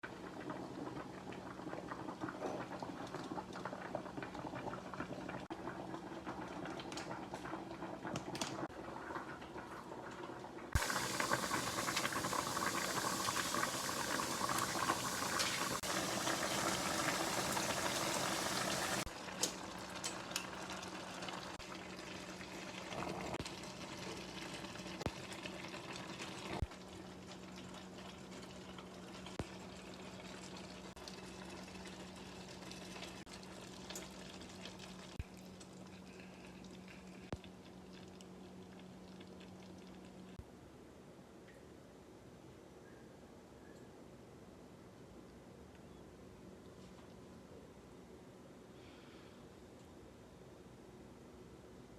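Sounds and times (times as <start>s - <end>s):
pot of water bubbling: 0.0s - 40.4s.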